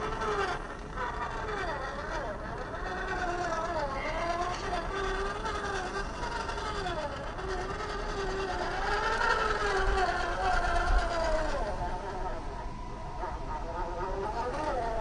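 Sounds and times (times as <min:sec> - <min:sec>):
toy car electric motor whining: 0:00.0 - 0:15.0.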